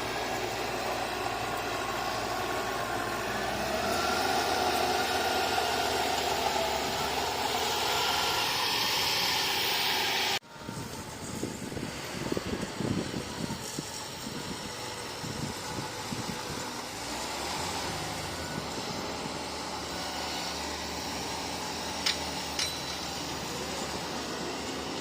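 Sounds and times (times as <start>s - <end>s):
bulldozer diesel engine rumbling: 0.0s - 25.0s
sharp metallic clinks: 22.0s - 23.5s.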